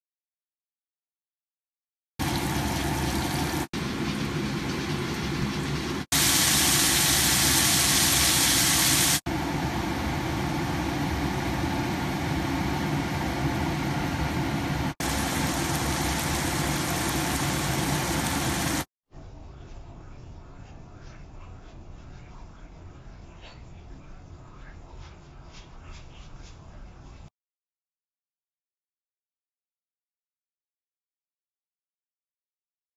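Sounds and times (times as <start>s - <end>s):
chicken sizzling in a wok: 2.2s - 18.9s.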